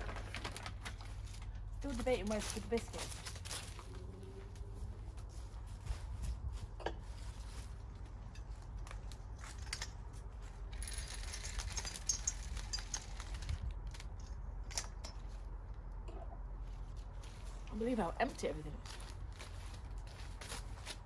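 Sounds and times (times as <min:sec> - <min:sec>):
packaging rustling: 0:00.0 - 0:04.0
steady low rumble: 0:00.0 - 0:21.0.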